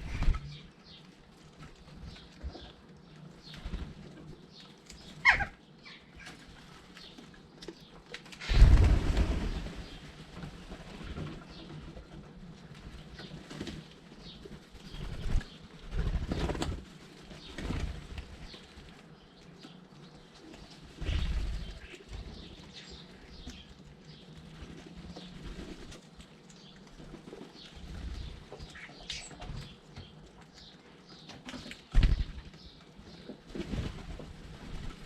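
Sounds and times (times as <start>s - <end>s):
birds flapping wings: 0.0s - 0.6s, 3.4s - 5.5s, 6.2s - 19.2s, 20.2s - 29.8s, 31.5s - 35.0s
faint bird chirping: 0.0s - 8.7s.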